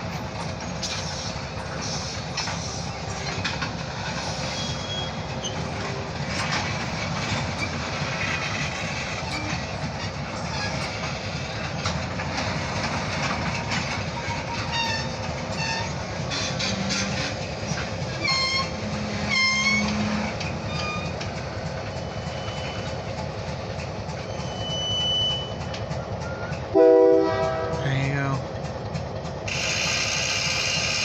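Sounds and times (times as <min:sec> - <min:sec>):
train wheels rumbling on rail: 0:00.0 - 0:31.0
high-pitched wheel squeals: 0:04.1 - 0:11.6, 0:14.0 - 0:21.2, 0:24.2 - 0:26.6
clicks over rail joints: 0:05.3 - 0:21.6.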